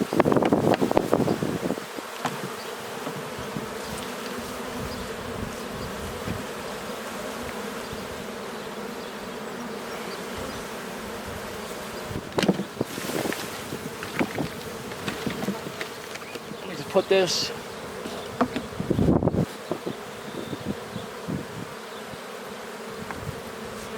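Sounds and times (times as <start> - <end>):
honeybees buzzing: 0.0 - 23.9
hive equipment knocks: 2.1 - 3.4, 12.2 - 16.5, 18.0 - 18.8.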